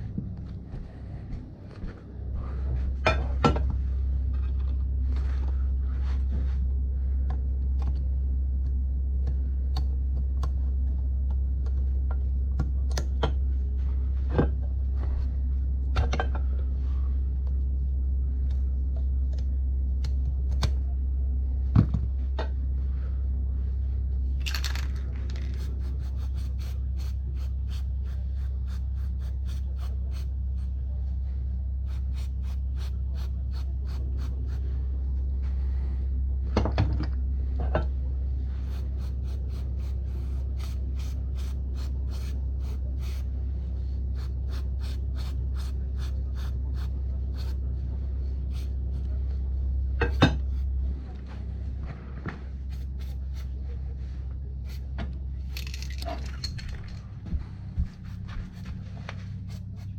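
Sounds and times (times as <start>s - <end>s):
steady low hum: 0.0s - 59.9s
metal tools clinking and scraping: 55.5s - 57.0s.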